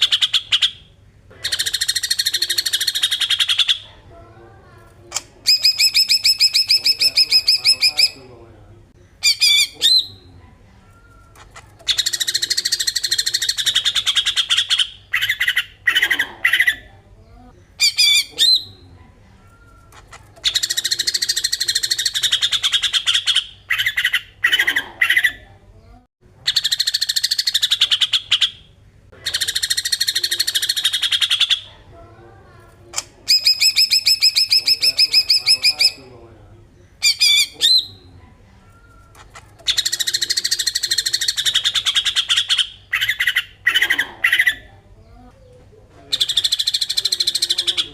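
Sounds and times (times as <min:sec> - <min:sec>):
bird harsh rasping call: 0:11.8 - 0:16.9, 0:20.4 - 0:25.4, 0:33.0 - 0:36.1, 0:37.0 - 0:38.0, 0:39.6 - 0:44.7.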